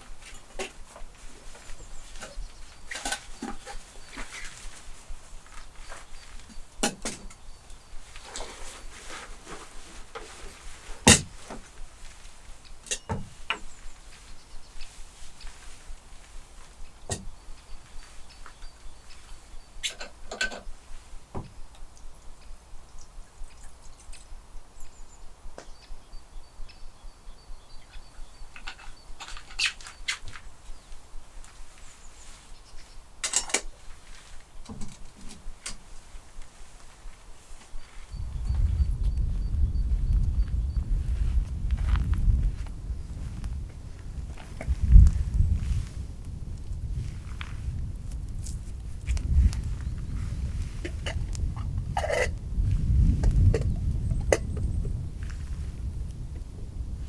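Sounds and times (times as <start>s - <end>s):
campfire crackling: 41.4s - 57.0s
sharp pops and snaps: 48.0s - 49.7s.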